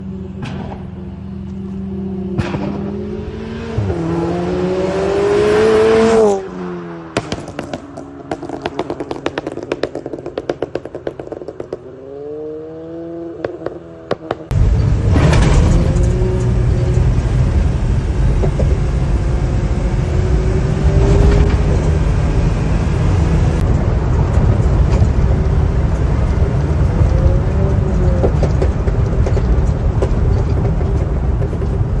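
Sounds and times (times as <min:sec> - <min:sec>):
car exhaust rumble: 0:07.1 - 0:32.0
sharp exhaust pops: 0:07.2 - 0:11.9.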